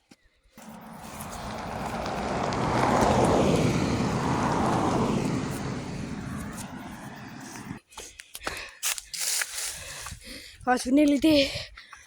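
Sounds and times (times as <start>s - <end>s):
car driving past: 0.6s - 7.8s.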